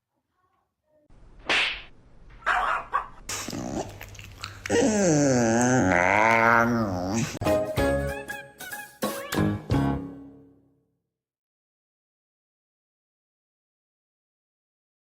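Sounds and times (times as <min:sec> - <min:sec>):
animal howling: 0:04.7 - 0:07.4.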